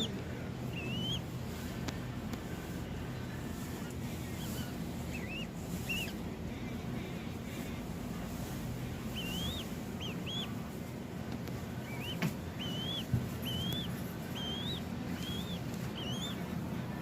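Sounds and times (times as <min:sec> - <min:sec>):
falcon chick chirping: 0:00.0 - 0:01.7, 0:04.2 - 0:06.2, 0:08.4 - 0:17.0.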